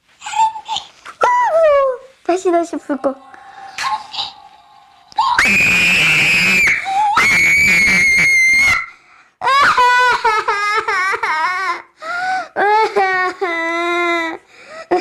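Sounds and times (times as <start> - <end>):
wavering crying wails: 3.0 - 8.9
high-pitched screams: 3.0 - 9.0.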